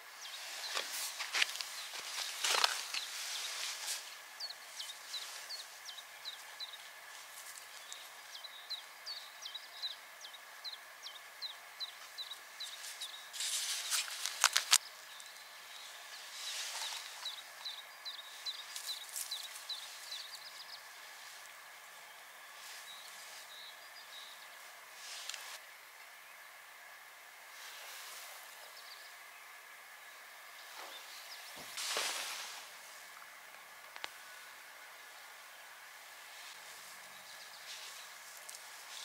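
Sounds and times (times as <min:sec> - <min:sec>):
songbird chirping: 0:00.0 - 0:39.0
rustling: 0:00.2 - 0:08.2, 0:12.6 - 0:21.6, 0:24.6 - 0:25.6, 0:30.6 - 0:33.2, 0:36.2 - 0:39.0.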